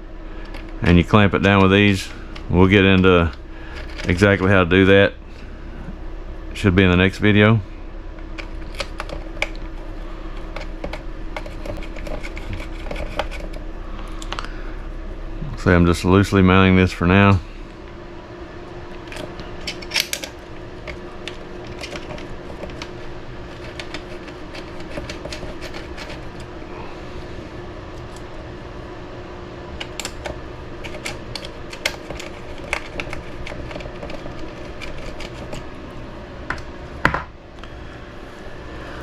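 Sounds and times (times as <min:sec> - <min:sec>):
steady hum: 0:00.0 - 0:39.0
small parts clicking and tapping: 0:19.0 - 0:26.2, 0:29.8 - 0:35.7.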